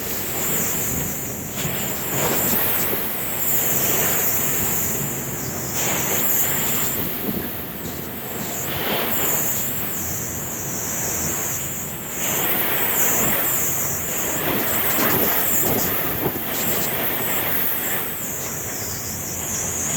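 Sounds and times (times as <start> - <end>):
gale-force wind buffeting microphone: 0.0 - 19.9.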